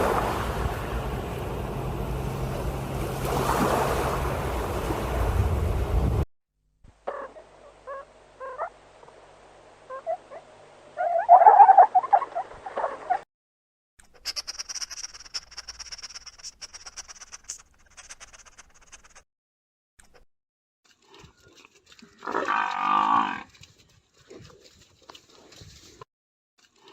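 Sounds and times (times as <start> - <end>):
animal calls: 7.1 - 8.8, 9.9 - 13.2, 14.1 - 17.5
high steady trill: 14.2 - 17.6.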